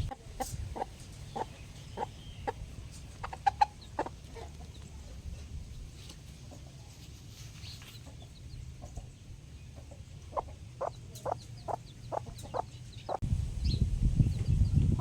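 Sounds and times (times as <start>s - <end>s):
chickens clucking: 0.0s - 13.2s, 14.2s - 15.0s
steady low rumble: 13.2s - 15.0s.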